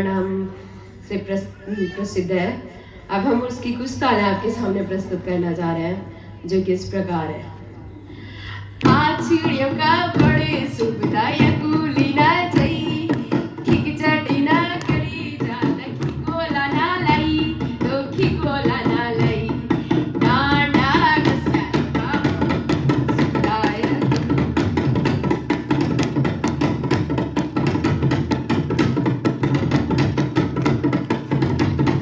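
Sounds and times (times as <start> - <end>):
drums played in fast rhythm: 8.9 - 32.0.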